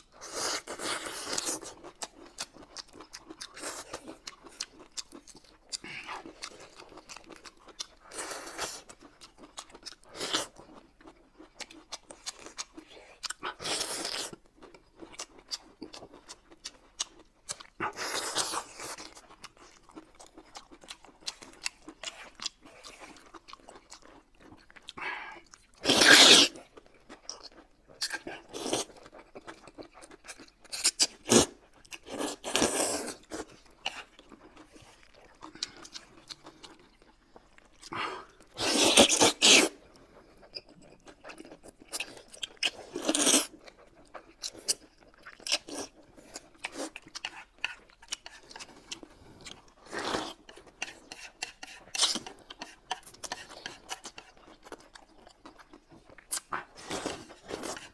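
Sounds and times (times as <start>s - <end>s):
chewing: 0.0s - 57.9s
slurping noodles: 25.8s - 26.6s, 37.9s - 39.8s.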